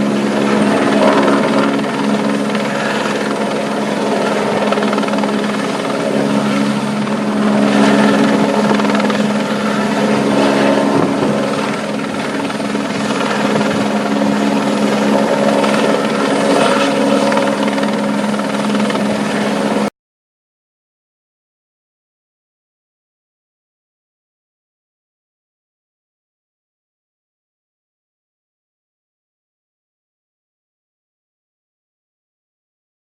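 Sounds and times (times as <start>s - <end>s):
helicopter drone: 0.0s - 19.9s.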